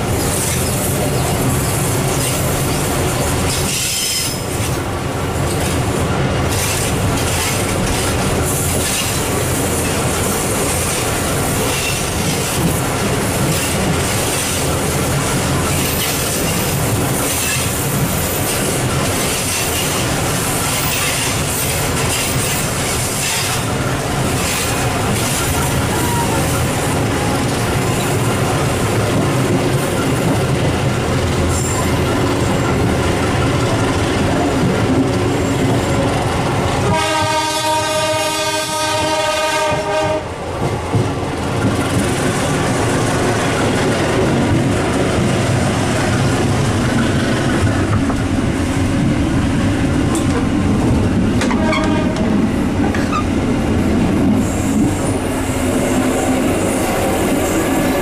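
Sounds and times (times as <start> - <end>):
train running noise: 0.0 - 58.0
train horn: 36.8 - 40.4, 51.4 - 52.4.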